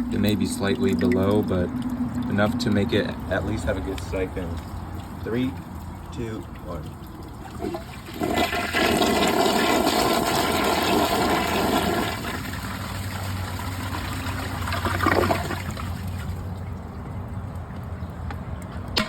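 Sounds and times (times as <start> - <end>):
toilet flushing: 7.4 - 16.3.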